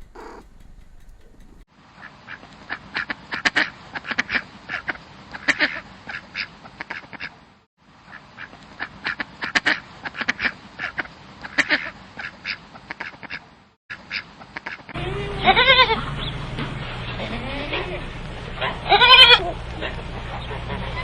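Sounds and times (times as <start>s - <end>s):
birds making harsh calls: 0.0s - 1.6s, 15.0s - 21.0s.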